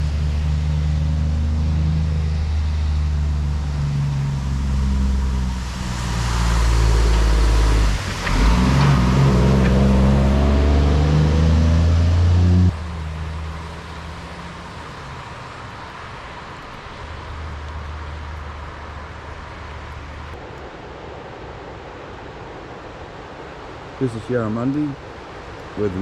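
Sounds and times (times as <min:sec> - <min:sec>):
vehicle engine accelerating: 0:00.0 - 0:20.4.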